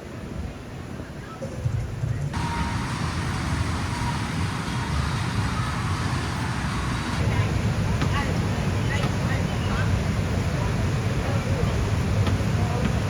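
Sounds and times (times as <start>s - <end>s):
road traffic rumble: 2.1s - 13.0s
hiss: 2.4s - 7.2s.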